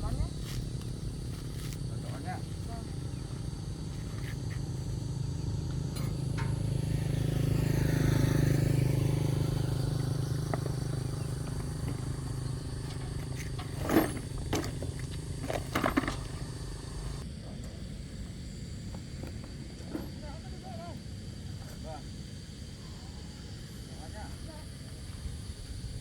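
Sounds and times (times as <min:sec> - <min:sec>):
motor vehicle passing by: 0:00.0 - 0:17.2.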